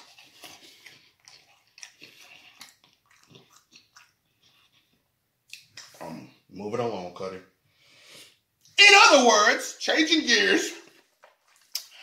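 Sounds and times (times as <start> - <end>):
person chewing fried food: 0.0 - 5.8.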